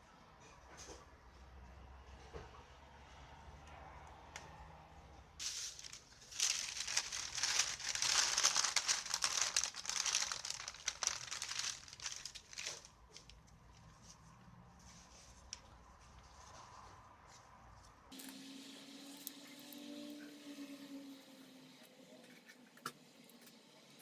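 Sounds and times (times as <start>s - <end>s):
crinkling rustle: 5.4s - 20.5s.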